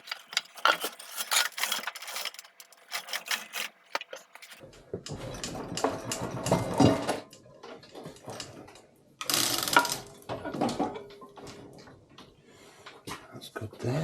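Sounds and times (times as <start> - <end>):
metal tools clicking and scraping: 0.0 - 4.6
metal clatter: 0.0 - 8.8.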